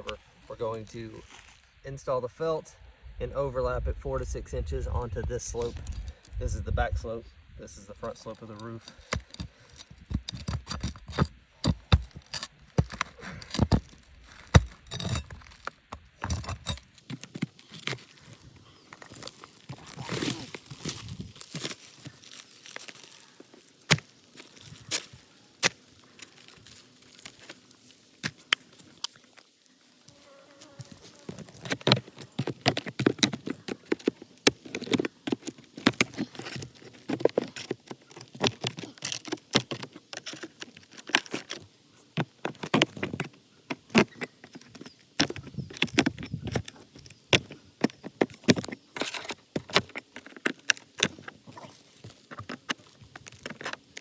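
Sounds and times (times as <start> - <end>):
clicks taps and scraping on roof: 8.3 - 23.2, 30.6 - 54.0.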